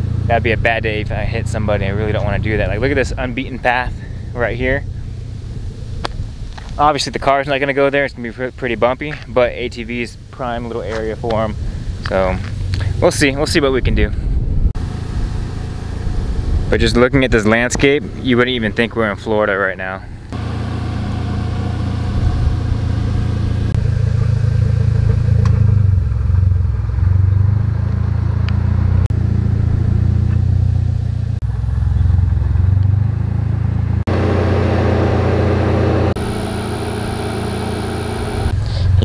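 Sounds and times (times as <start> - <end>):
car engine idling: 0.0 - 8.4, 14.8 - 39.0.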